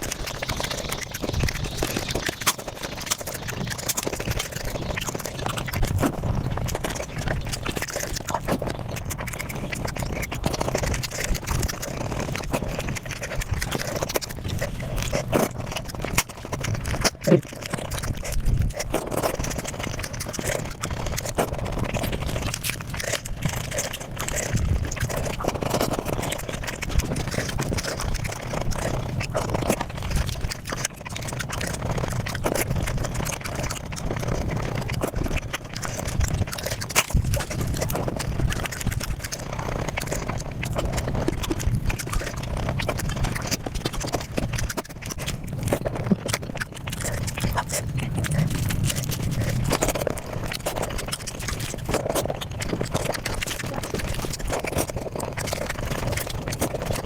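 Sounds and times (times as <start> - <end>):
sped-up chewing and mouth noises: 0.0 - 57.0.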